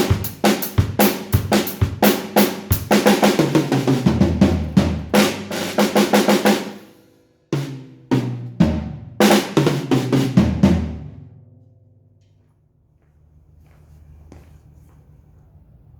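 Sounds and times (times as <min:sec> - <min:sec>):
drum kit and cymbals playing: 0:00.0 - 0:11.2.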